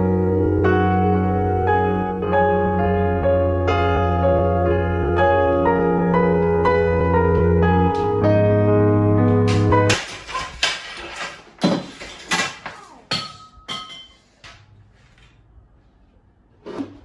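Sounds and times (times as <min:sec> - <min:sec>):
objects knocking and clinking: 0:09.5 - 0:14.2
crockery ringing: 0:11.7 - 0:14.2.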